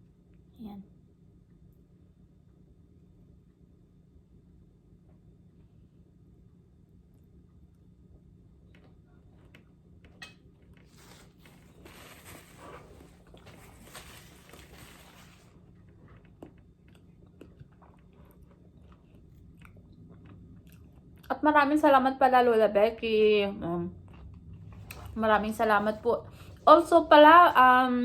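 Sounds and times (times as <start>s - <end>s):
person chewing crunchy apple: 11.0s - 21.3s, 24.0s - 25.2s.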